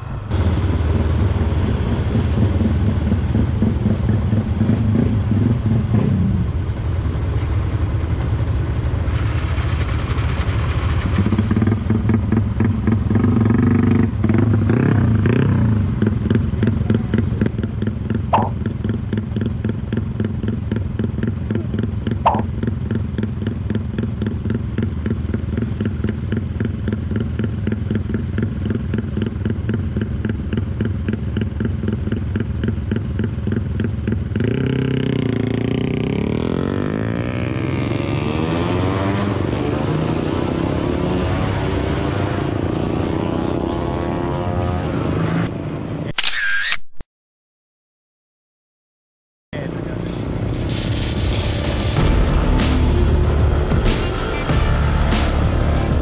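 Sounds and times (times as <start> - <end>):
motorcycle idling and revving: 0.0 - 46.1, 49.6 - 50.7, 51.5 - 56.0.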